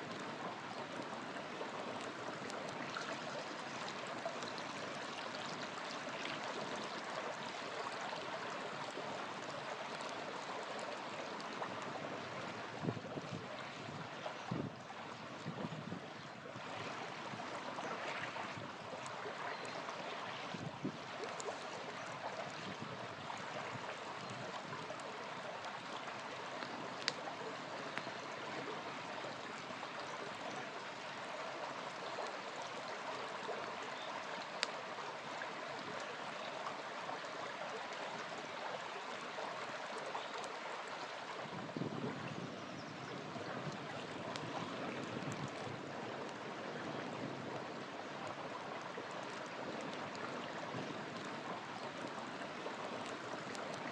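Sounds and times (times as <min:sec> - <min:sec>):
small river flowing: 0:00.0 - 0:53.9
campfire pops: 0:24.5 - 0:28.2, 0:43.7 - 0:46.4.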